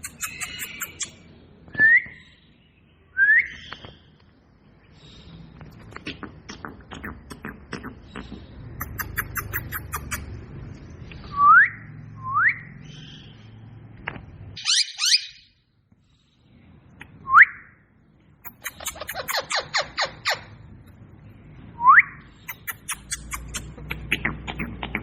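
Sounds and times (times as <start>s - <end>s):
parrot whistling: 0.0s - 1.1s, 8.8s - 10.2s
high squeaky chirps: 0.0s - 1.2s, 8.8s - 10.3s, 14.6s - 15.6s, 18.4s - 20.6s, 22.4s - 25.0s.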